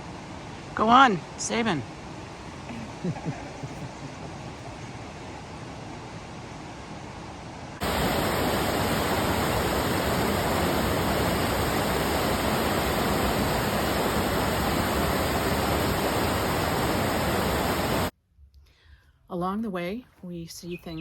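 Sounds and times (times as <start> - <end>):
river rushing: 7.8 - 18.1.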